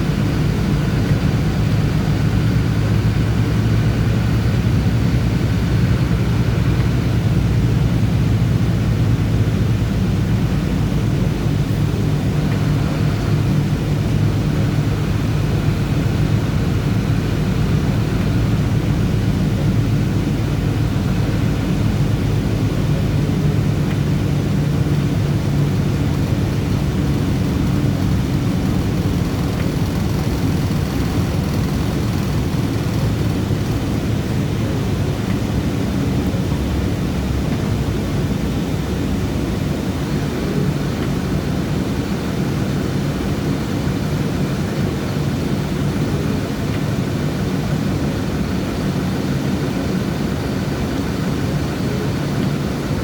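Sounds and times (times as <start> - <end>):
bus engine droning: 0.0 - 38.4
road noise: 22.8 - 37.6.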